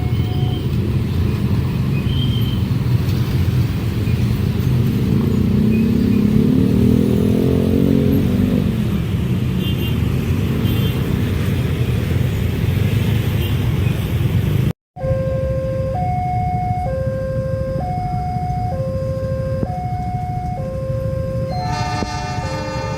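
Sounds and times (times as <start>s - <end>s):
level crossing alarm: 15.0s - 22.4s
train rumbling past: 21.4s - 22.9s.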